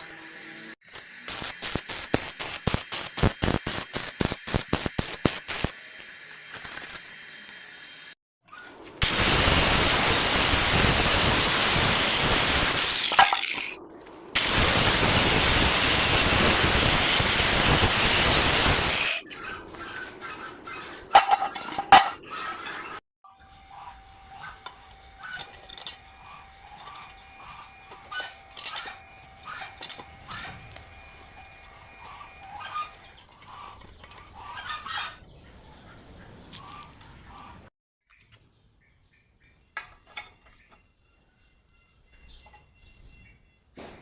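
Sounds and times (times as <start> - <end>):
power tool whining under load: 9.0 - 13.2.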